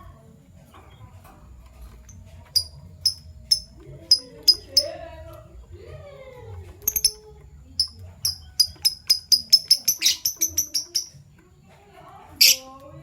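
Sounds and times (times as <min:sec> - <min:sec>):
lovebird high chirps: 0:02.5 - 0:04.9, 0:06.8 - 0:07.2, 0:07.8 - 0:11.3, 0:12.4 - 0:12.7.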